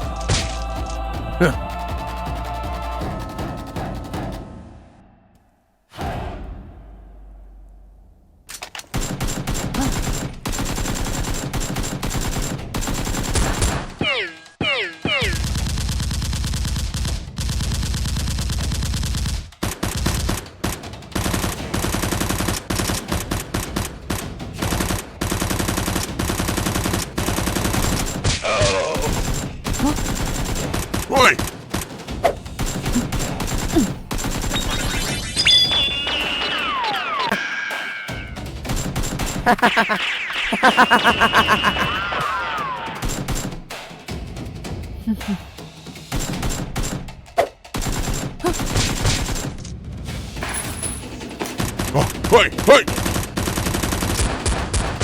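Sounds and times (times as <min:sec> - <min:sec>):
people shouting: 0:00.0 - 0:04.4, 0:28.4 - 0:29.2, 0:31.1 - 0:31.4, 0:33.7 - 0:34.1, 0:39.5 - 0:40.0, 0:40.6 - 0:43.0
rapid automatic gunfire: 0:08.9 - 0:14.0, 0:15.2 - 0:28.3, 0:29.0 - 0:35.2, 0:38.6 - 0:39.5, 0:43.0 - 0:43.8, 0:46.1 - 0:49.7, 0:51.5 - 0:55.0.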